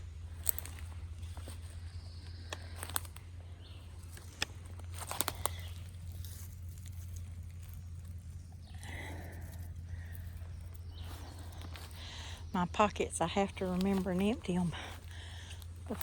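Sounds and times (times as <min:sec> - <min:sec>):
steady low hum: 0:00.0 - 0:16.0
footsteps on wet ground: 0:04.0 - 0:16.0.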